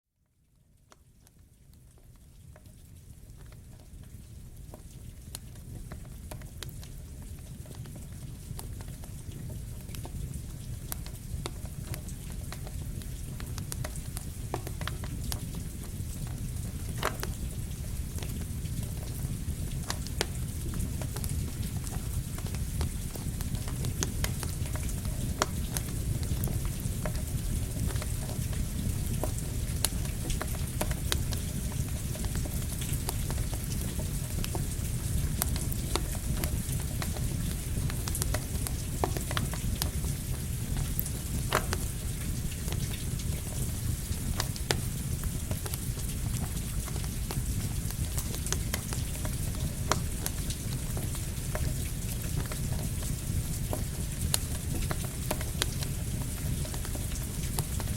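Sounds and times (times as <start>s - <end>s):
steady rain: 0.8s - 57.9s
campfire crackling and popping: 1.7s - 57.9s.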